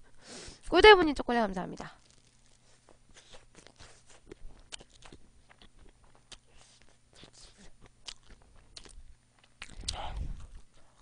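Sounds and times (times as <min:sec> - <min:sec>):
person chewing food: 0:02.0 - 0:11.0.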